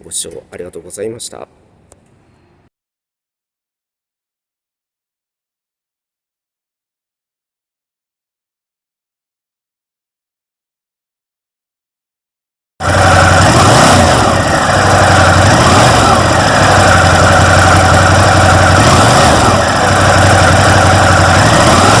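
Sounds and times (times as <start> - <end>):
motorcycle engine running: 12.8 - 22.0.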